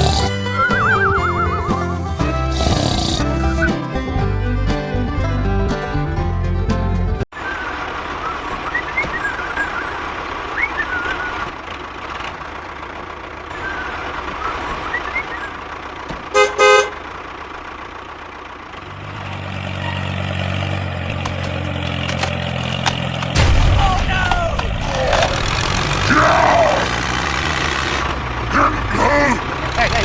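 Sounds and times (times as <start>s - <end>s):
low engine hum: 0.0s - 30.0s
vehicle horn toots: 16.3s - 17.1s.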